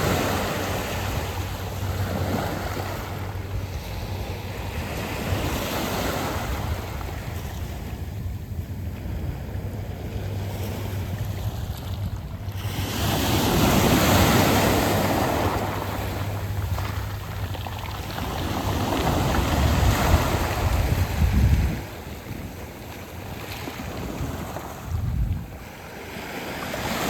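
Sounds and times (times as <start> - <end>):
waves washing over pebbles: 0.0 - 27.0.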